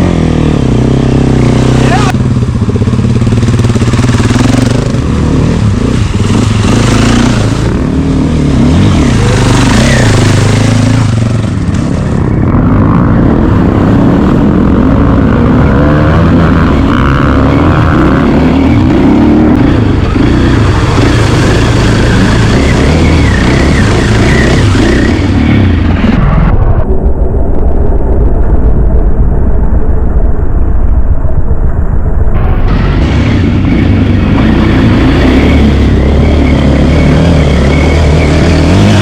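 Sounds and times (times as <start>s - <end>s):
motor engine revving: 0.0s - 26.9s, 32.4s - 39.0s.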